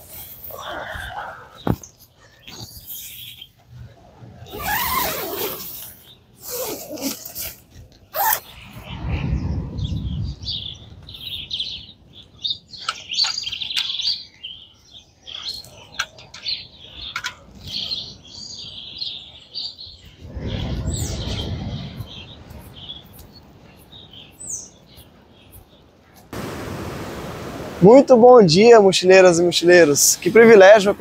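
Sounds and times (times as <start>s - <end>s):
birds chirping and calling: 0.0s - 3.6s, 8.2s - 26.2s
low rumble: 8.5s - 11.1s.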